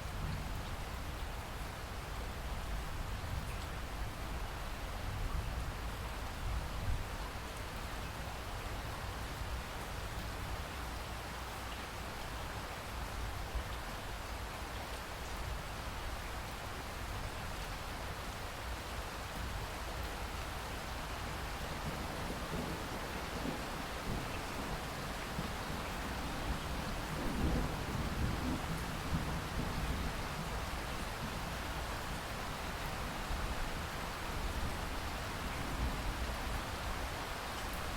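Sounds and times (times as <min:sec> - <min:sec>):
steady rain falling: 0:00.0 - 0:37.9.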